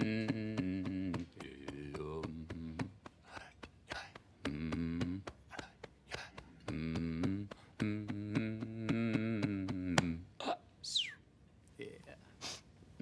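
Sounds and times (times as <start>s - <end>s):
sharp rhythmic thumps: 0.0s - 10.3s
man humming chant: 0.0s - 10.7s.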